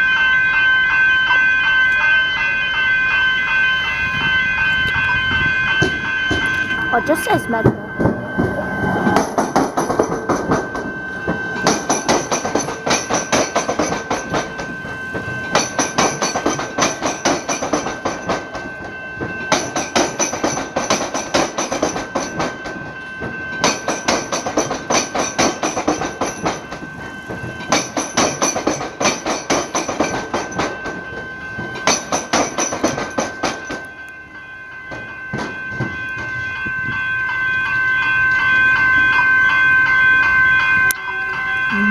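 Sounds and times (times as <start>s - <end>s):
steady high tone: 0.0s - 19.8s, 33.8s - 41.9s
train wheels clattering: 4.2s - 34.2s, 34.8s - 37.4s.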